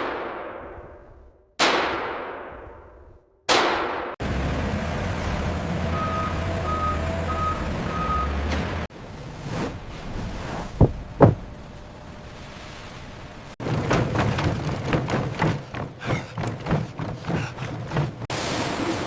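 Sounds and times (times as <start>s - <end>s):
engine rumble: 4.2s - 19.0s
reversing alarm beeping: 5.9s - 8.4s
short knocks: 13.6s - 18.3s.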